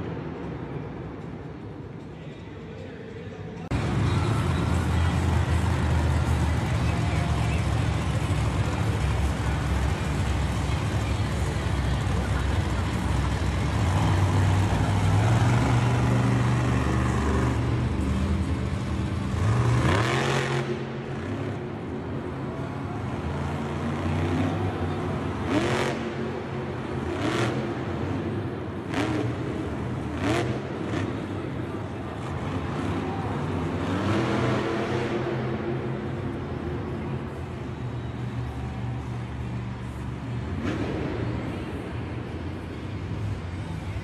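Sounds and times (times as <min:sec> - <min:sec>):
off-road vehicle engine revving: 0:03.7 - 0:21.7, 0:23.2 - 0:37.4.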